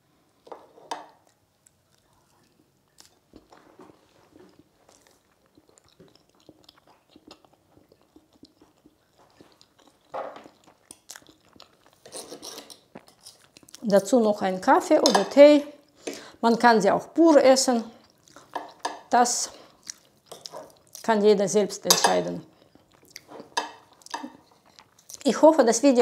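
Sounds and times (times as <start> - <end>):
person chewing: 1.1 - 13.8, 18.0 - 18.9, 19.6 - 21.1, 22.5 - 25.3.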